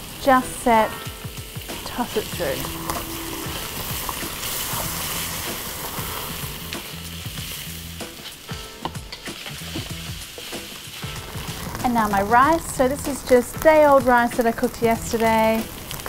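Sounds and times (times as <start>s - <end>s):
food sizzling in a wok: 0.0s - 16.0s
utensil scraping pan: 1.8s - 11.8s.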